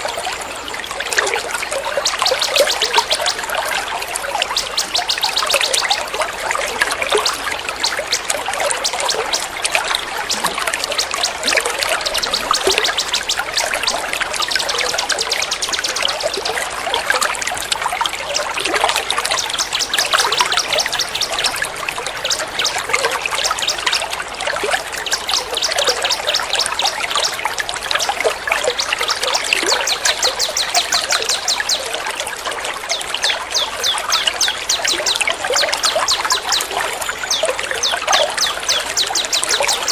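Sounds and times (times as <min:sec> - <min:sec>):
water trickling: 0:00.0 - 0:39.9
high chattering bird calls: 0:32.9 - 0:39.9.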